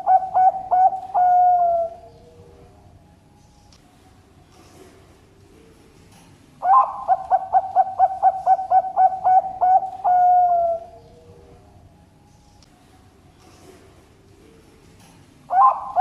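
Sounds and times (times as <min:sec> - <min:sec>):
dove cooing: 0:00.0 - 0:02.8, 0:06.6 - 0:11.6, 0:15.5 - 0:16.0.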